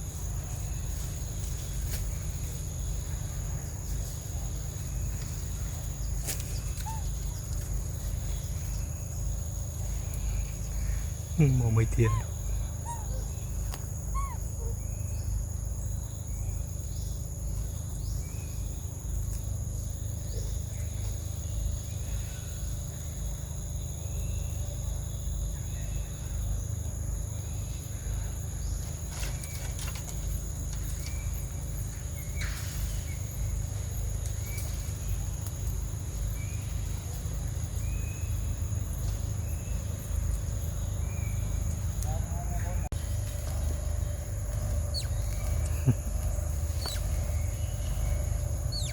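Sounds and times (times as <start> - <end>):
insects droning: 0.0 - 48.9
short chirping calls: 6.6 - 7.4, 11.3 - 14.8, 44.8 - 48.9.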